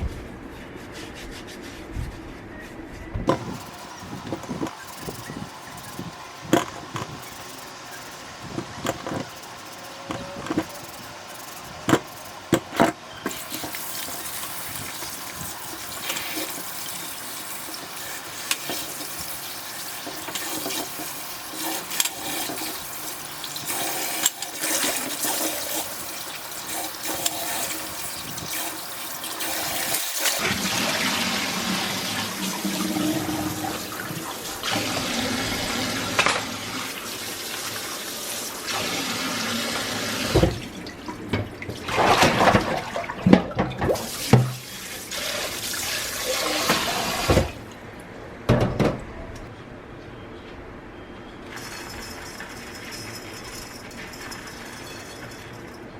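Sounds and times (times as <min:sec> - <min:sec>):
tap water running into sink: 0:03.3 - 0:47.6.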